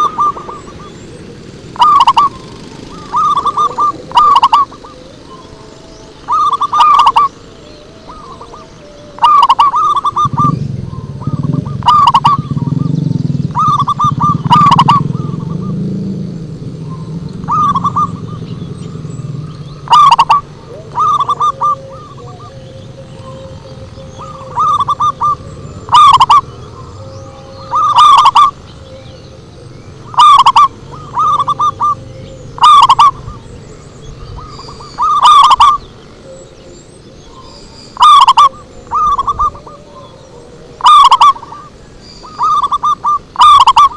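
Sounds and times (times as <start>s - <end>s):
dove cooing: 0.0s - 43.9s
low rumble: 10.3s - 27.8s.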